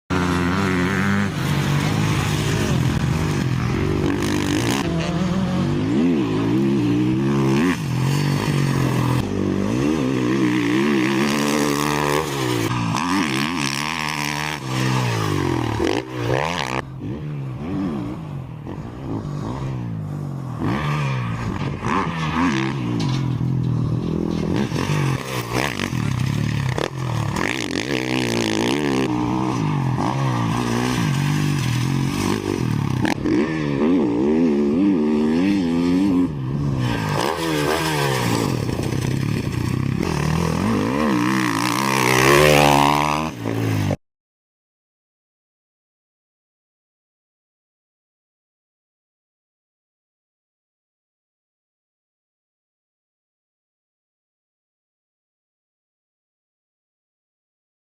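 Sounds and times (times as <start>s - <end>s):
dirt bike engine revving: 0.1s - 44.0s.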